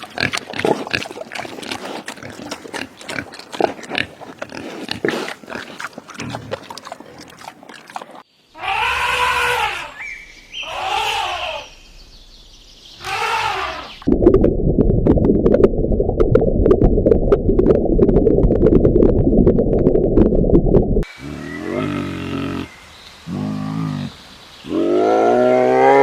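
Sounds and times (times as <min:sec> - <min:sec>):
animal calling: 0:08.6 - 0:11.8, 0:13.0 - 0:14.1.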